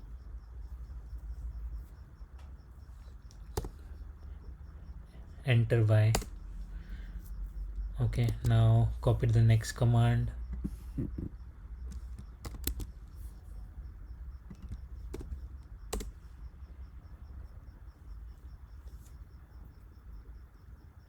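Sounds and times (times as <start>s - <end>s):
low steady hum: 0.0s - 21.0s
keyboard and mouse clicks: 3.2s - 4.0s, 6.1s - 6.4s, 8.1s - 8.6s, 11.9s - 13.2s, 14.5s - 16.2s.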